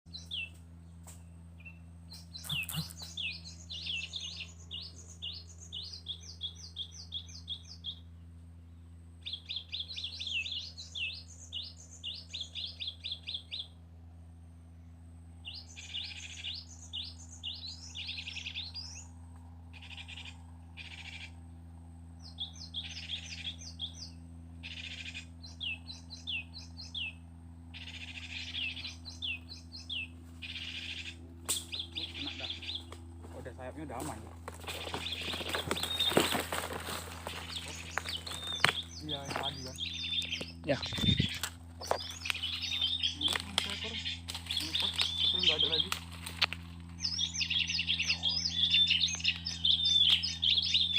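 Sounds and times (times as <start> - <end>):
low hum: 0.1 - 50.9
bird rapid high chirps: 1.6 - 8.1, 22.2 - 32.9, 33.6 - 36.5, 37.2 - 46.0, 47.0 - 50.9.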